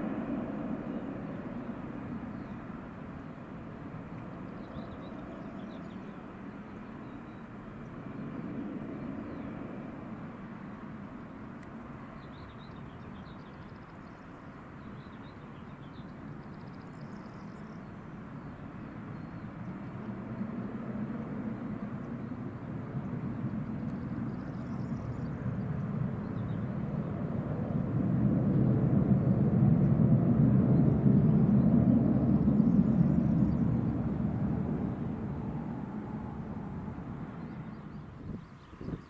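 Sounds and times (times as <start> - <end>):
small birds chirping: 4.2 - 9.7, 11.2 - 20.5, 21.4 - 28.0, 37.0 - 39.0.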